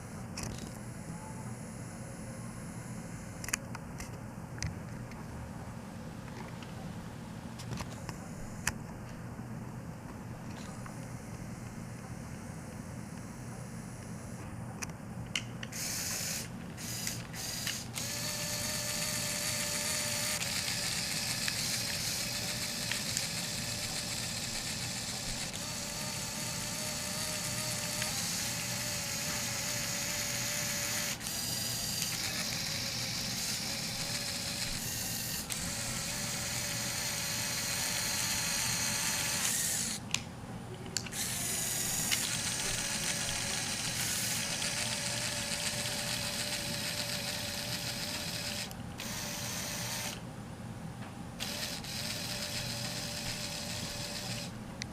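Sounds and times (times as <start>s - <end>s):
toy electric motor whining: 15.7s - 40.0s, 41.0s - 50.2s, 51.4s - 54.6s.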